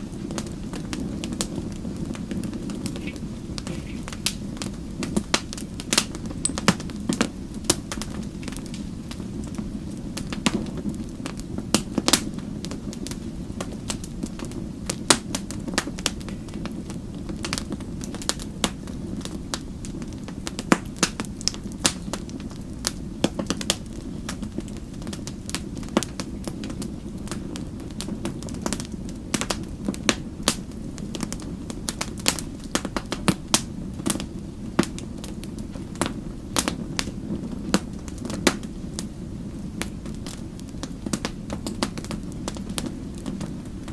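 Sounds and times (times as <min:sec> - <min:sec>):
wood fire crackling: 0:00.0 - 0:43.9.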